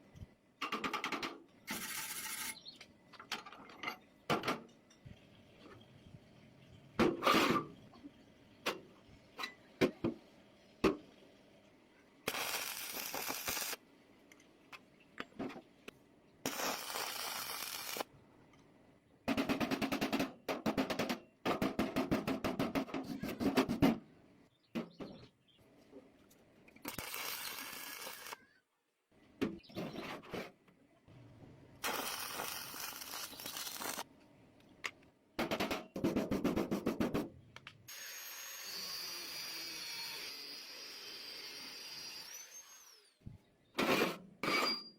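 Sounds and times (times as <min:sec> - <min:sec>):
tool hissing: 0:12.3 - 0:13.8, 0:16.5 - 0:18.0, 0:26.9 - 0:28.4, 0:31.8 - 0:34.0, 0:37.9 - 0:43.1.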